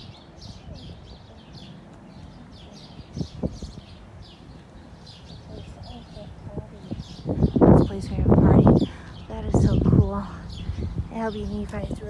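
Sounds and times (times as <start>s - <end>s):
small bird chirping: 0.0s - 11.9s
low steady rumble: 5.5s - 12.0s.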